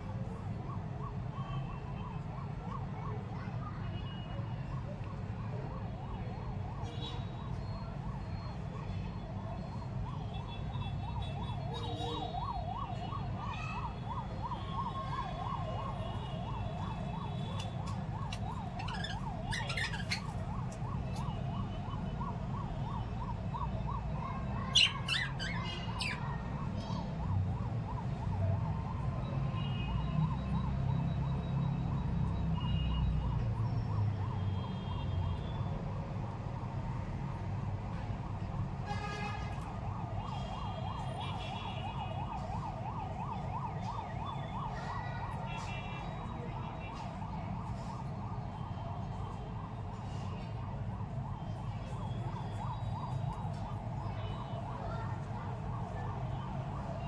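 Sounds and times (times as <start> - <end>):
birds chirping: 18.5 - 20.4, 24.7 - 26.3.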